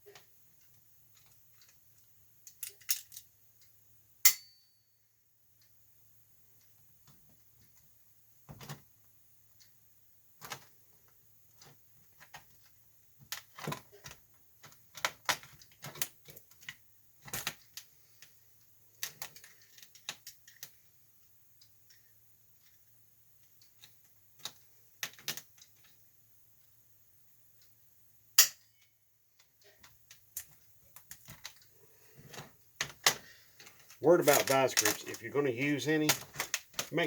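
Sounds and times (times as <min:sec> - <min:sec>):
hand tools clicking and clanking: 0:32.2 - 0:37.0.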